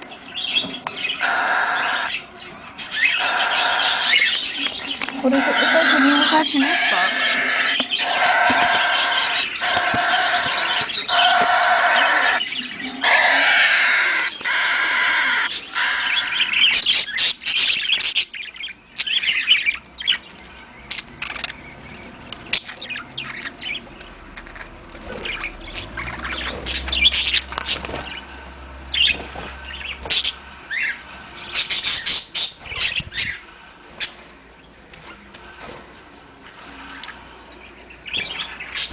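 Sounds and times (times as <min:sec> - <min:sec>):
birds chirping and tweeting: 0:00.0 - 0:38.9
parrots giving harsh cries: 0:00.5 - 0:20.2, 0:24.4 - 0:33.4.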